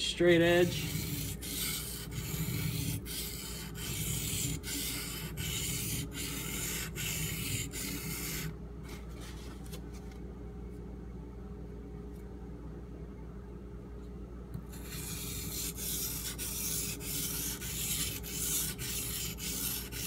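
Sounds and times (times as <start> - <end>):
knife scraping on whetstone: 0.6 - 8.5, 14.7 - 20.0.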